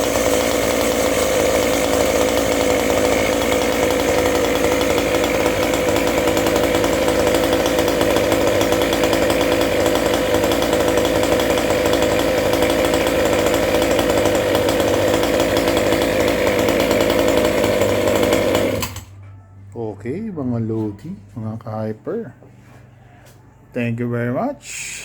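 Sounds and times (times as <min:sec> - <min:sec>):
scooter two-stroke engine running: 0:00.0 - 0:19.2.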